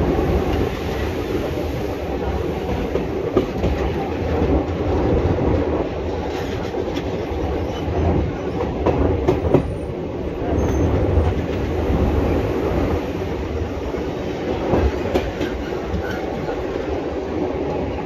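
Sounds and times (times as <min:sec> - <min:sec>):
rail-joint clickety-clack: 0:00.0 - 0:18.0
train wheels rumbling on rails: 0:00.0 - 0:18.0.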